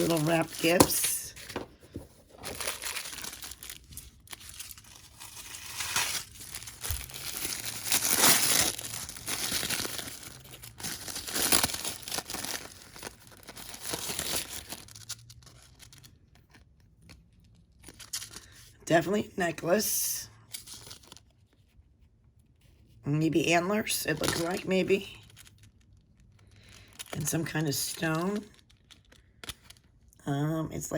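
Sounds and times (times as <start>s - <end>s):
wrapping paper tearing and crinkling: 0.0s - 16.1s.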